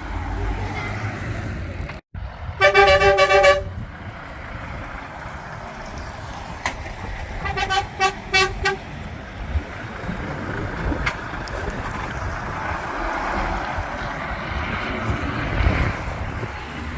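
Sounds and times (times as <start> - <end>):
diesel engines rumbling: 0.0 - 16.9
truck horn short toots: 2.6 - 3.7, 7.4 - 8.8.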